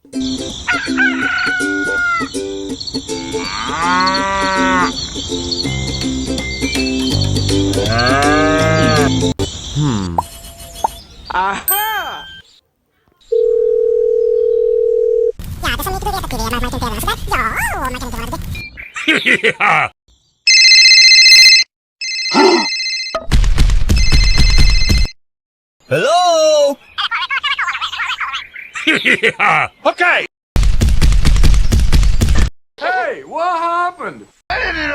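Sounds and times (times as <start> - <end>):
farmyard background noise: 0.1 - 13.3
rooster crowing: 0.7 - 2.4
cow mooing: 3.4 - 5.0, 7.8 - 9.2
telephone electronic trilling ring: 20.5 - 23.2.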